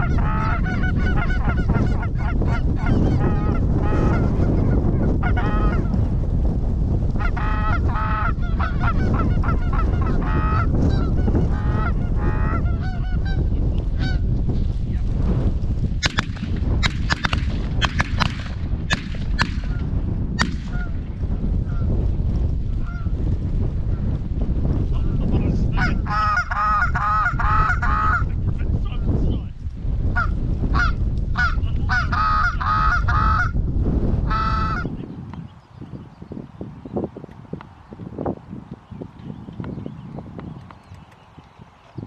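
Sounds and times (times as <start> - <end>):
geese honking: 0.0 - 6.0, 7.2 - 13.4, 25.8 - 28.3, 30.2 - 33.6, 34.3 - 34.9
low rumble: 0.0 - 35.4
sharp clicks: 16.0 - 19.8.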